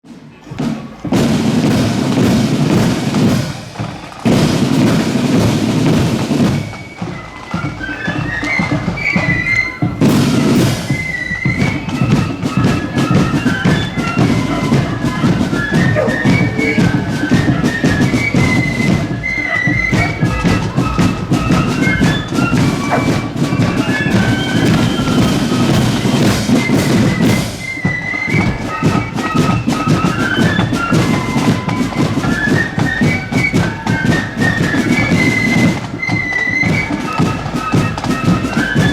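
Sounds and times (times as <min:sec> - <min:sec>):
flute band melody: 0:00.4 - 0:38.9
side and bass drums: 0:19.7 - 0:27.4.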